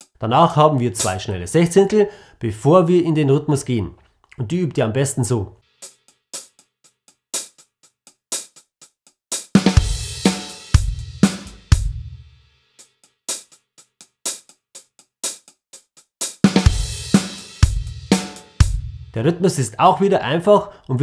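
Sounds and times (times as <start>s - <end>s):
closed hi-hat strokes: 5.6s - 19.1s
bass drum hits: 16.7s - 19.2s.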